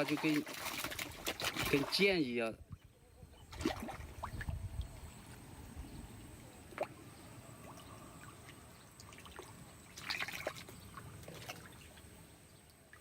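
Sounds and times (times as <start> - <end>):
fish splashing at surface: 0.0 - 2.0, 7.6 - 12.0
pond water trickling and dripping: 0.0 - 13.0.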